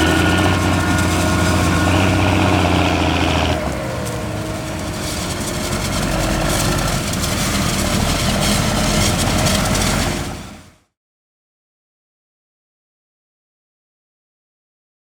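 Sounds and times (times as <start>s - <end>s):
diesel engine running: 0.0s - 10.8s.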